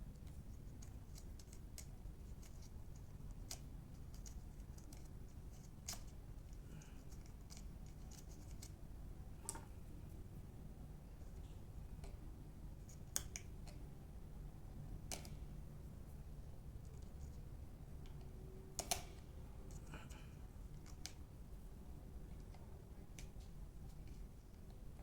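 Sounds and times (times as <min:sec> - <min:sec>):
low steady hum: 0:00.0 - 0:25.0
small clicks and light scrapes: 0:00.1 - 0:08.8, 0:09.4 - 0:09.8, 0:11.1 - 0:12.2, 0:12.8 - 0:13.8, 0:15.1 - 0:15.5, 0:16.8 - 0:21.2, 0:22.3 - 0:25.0.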